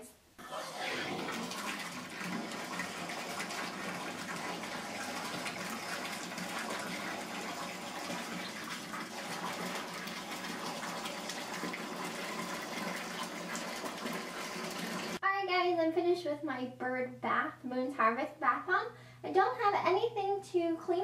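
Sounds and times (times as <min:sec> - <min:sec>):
bath tap running into bathtub: 0:00.4 - 0:15.2.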